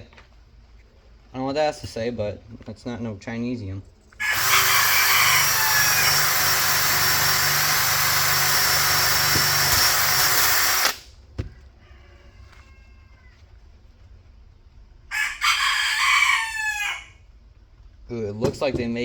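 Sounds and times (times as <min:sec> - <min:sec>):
wire wheel scrubbing metal: 0:04.2 - 0:11.0
motor hum: 0:04.3 - 0:11.5.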